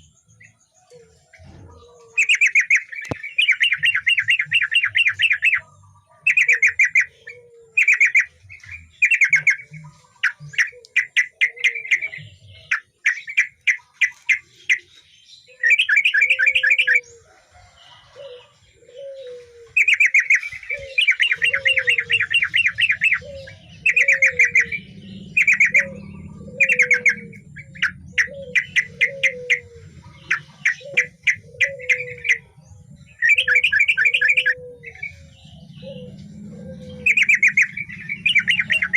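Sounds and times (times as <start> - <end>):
bird song with rapid chattering: 0.0 - 38.9
soft low bird call: 0.8 - 38.9.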